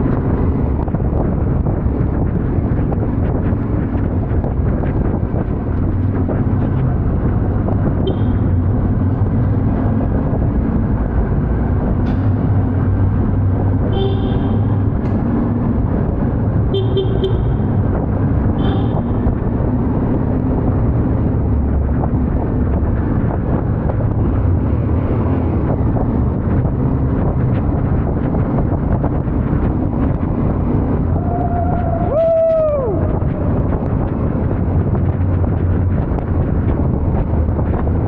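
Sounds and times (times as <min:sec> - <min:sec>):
motorcycle engine running: 0:13.7 - 0:15.6, 0:16.6 - 0:19.5
horn toots: 0:13.8 - 0:14.9, 0:16.7 - 0:17.7, 0:18.6 - 0:19.3.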